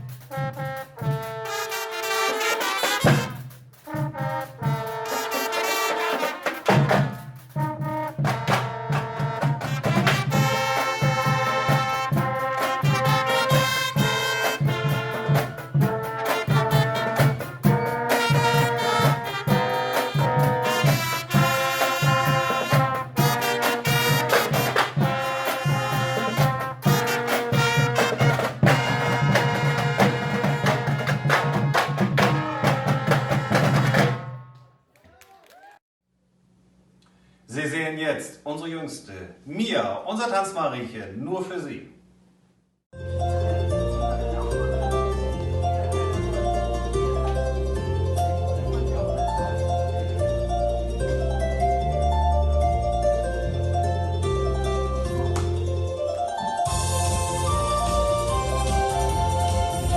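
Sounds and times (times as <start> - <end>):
marching band brass and drums: 0.0 - 34.7.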